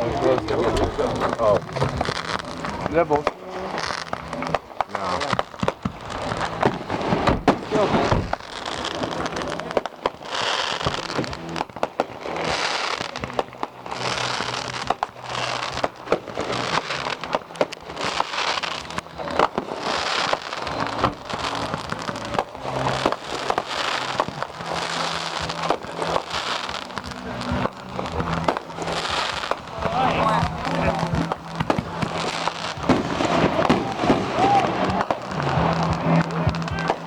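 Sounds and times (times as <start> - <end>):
fireworks bangs: 0.0 - 37.0
fireworks crackling: 0.0 - 37.0.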